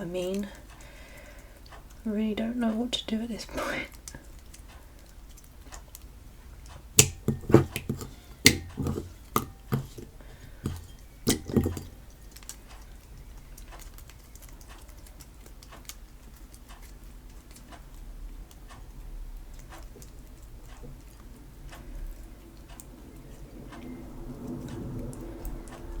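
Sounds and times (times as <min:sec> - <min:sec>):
faint steady ticking: 0:00.0 - 0:26.0
soft thumps: 0:07.0 - 0:12.0.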